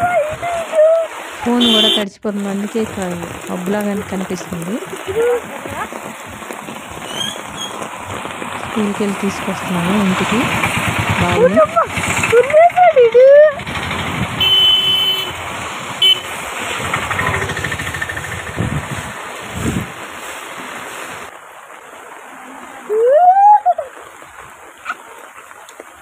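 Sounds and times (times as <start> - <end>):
heavy rain: 0.0 - 26.0
vehicles on a wet street: 0.0 - 26.0
car horn toot: 1.6 - 2.1, 14.4 - 15.4, 16.0 - 16.3.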